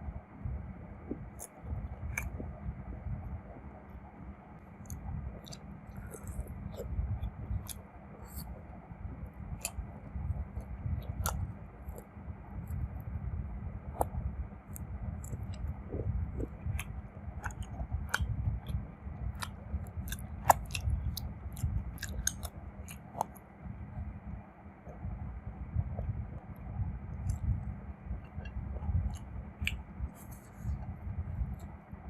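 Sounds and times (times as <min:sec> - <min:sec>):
muffled mouth rumble: 0:00.0 - 0:32.0
chewing crunchy food: 0:01.1 - 0:02.6, 0:04.6 - 0:08.6, 0:09.2 - 0:12.9, 0:14.0 - 0:23.5, 0:28.2 - 0:31.7.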